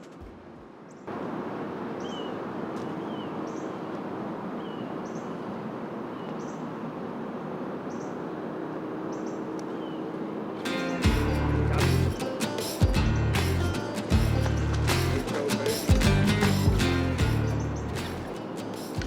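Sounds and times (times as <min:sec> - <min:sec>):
steady outdoor rushing noise: 0:00.0 - 0:19.0
bird chirping: 0:02.0 - 0:04.0, 0:04.6 - 0:06.9, 0:07.8 - 0:08.3, 0:09.1 - 0:18.6.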